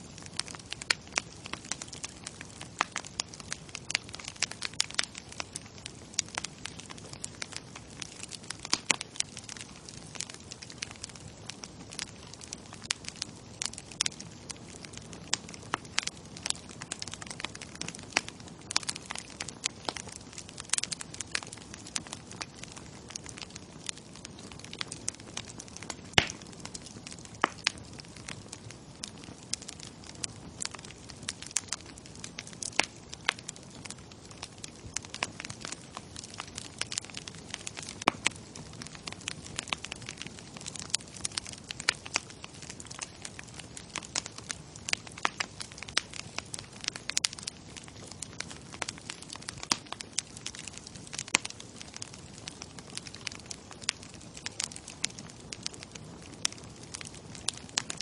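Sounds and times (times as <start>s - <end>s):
bonfire crackling: 0.0s - 58.0s
wood popping and snapping: 25.7s - 27.7s.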